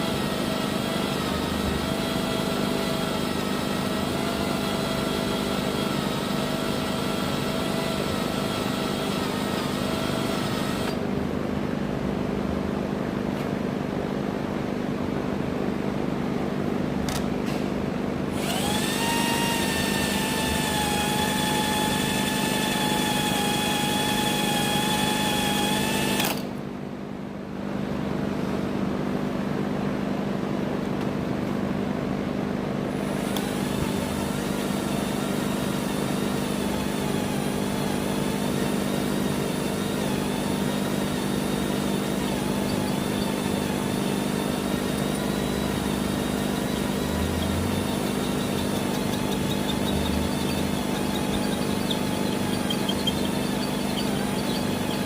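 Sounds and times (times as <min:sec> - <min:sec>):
electric drill boring steel: 0:00.0 - 0:11.0, 0:18.3 - 0:26.4, 0:33.0 - 0:55.0.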